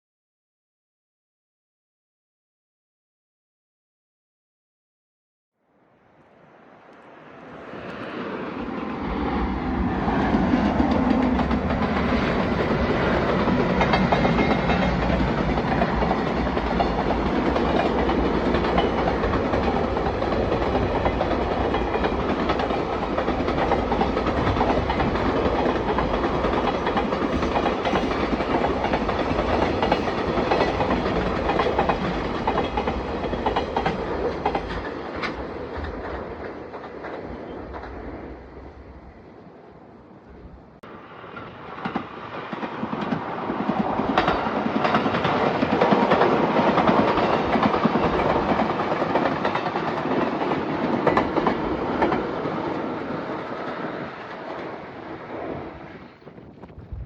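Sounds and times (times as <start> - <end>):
train wheels clacking on rails: 10.1 - 38.2, 41.3 - 55.8.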